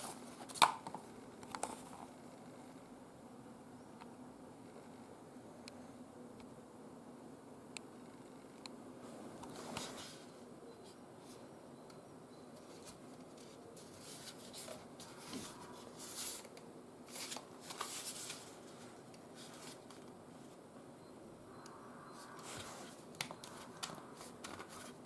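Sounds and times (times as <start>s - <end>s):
rustling and handling noises: 0.0s - 2.2s, 9.0s - 11.5s, 12.5s - 20.7s, 22.1s - 25.0s.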